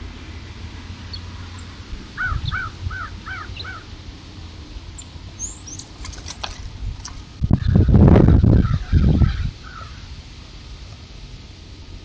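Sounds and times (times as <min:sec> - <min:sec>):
bird calling: 0:01.1 - 0:03.9, 0:05.0 - 0:06.4, 0:07.5 - 0:10.1.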